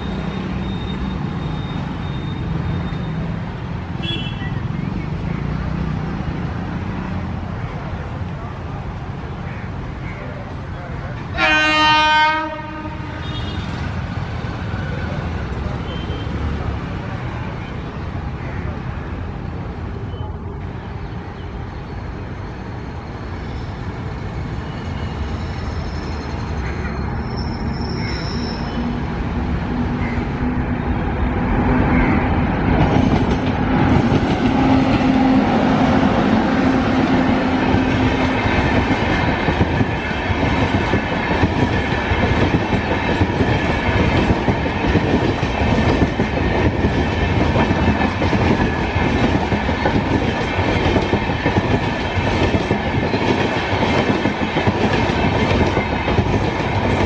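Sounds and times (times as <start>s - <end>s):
electric locomotive hum: 18.8s - 57.0s.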